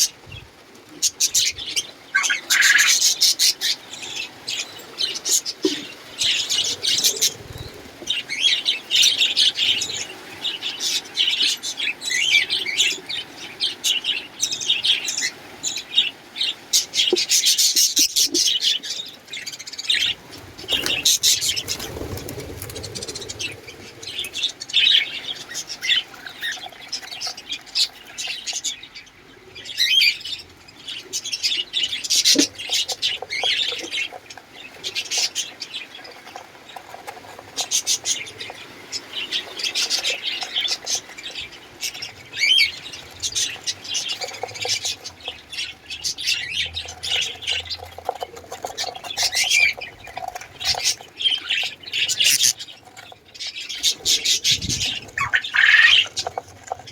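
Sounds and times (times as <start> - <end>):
cage birds chirping and squawking: 0.0 - 56.9.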